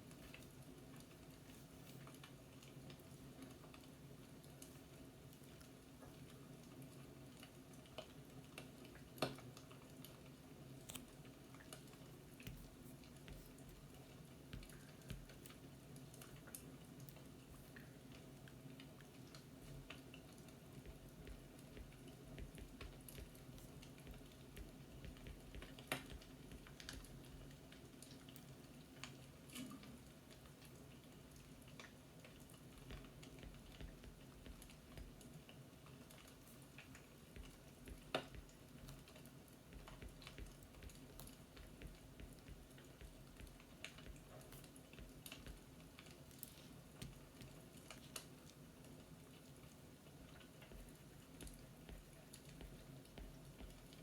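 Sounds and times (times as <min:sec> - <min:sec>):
faint fireplace crackling: 0:00.0 - 0:54.0.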